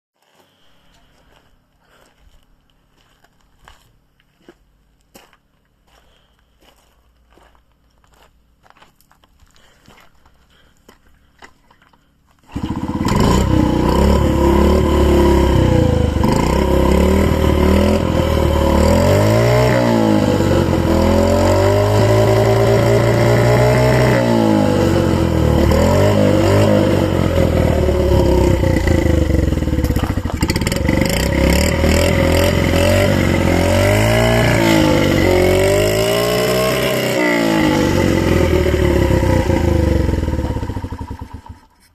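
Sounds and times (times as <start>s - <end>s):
motorcycle engine throttle blips: 12.5s - 41.9s.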